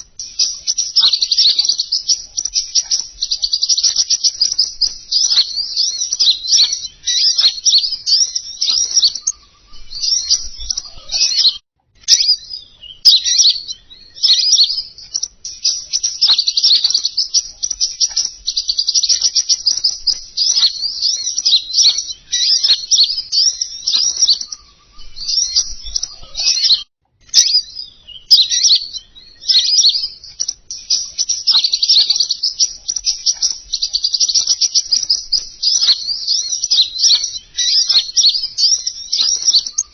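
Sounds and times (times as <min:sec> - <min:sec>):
songbird chirping and twittering: 0:00.0 - 0:39.9.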